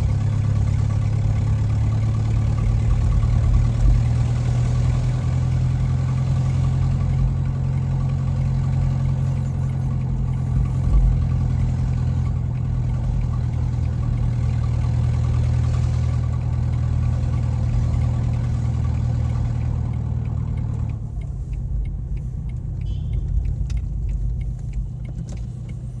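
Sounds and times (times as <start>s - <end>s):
car engine low drone: 0.0s - 26.0s.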